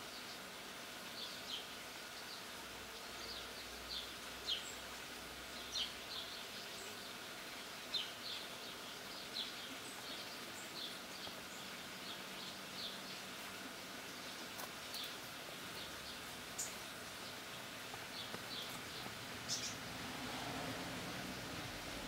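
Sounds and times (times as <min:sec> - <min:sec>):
small birds chirping: 0:00.0 - 0:20.0
steady outdoor hiss: 0:00.0 - 0:22.0.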